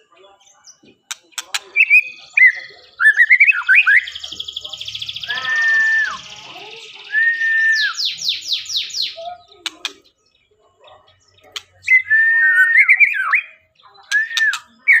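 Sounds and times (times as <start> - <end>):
bird singing whistles and warbles: 0.4 - 15.0.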